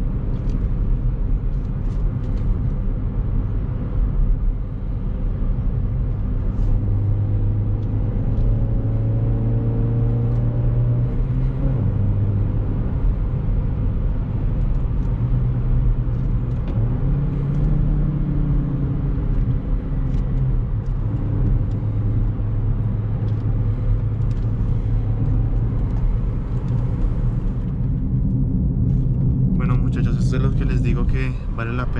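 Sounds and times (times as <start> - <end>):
car engine pulling uphill: 0.0 - 31.9.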